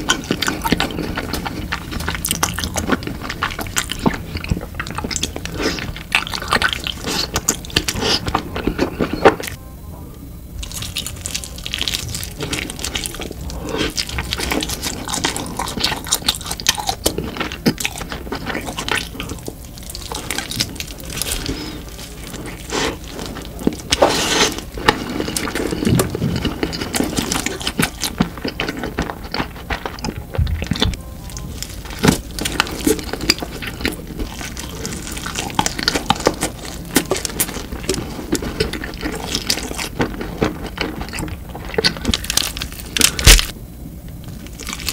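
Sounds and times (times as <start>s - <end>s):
slurping: 10.8s - 30.2s.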